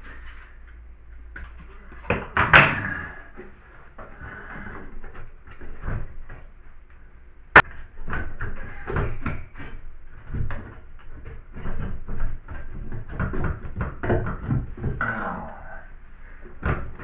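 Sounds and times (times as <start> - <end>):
hard objects knocking and clattering: 7.6 - 15.2.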